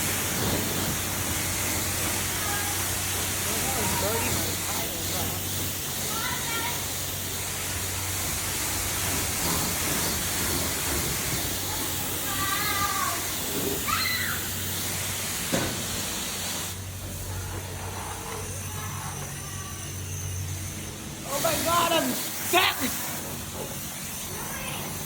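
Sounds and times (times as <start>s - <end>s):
pressure washer spray hissing: 0.0s - 25.0s.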